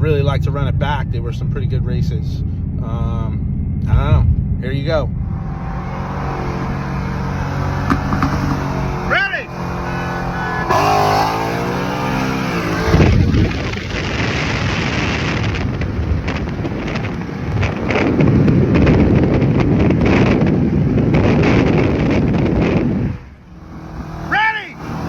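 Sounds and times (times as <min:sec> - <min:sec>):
wind and road noise at speed: 0:00.0 - 0:25.0
car engine accelerating: 0:04.7 - 0:18.4, 0:19.3 - 0:25.0.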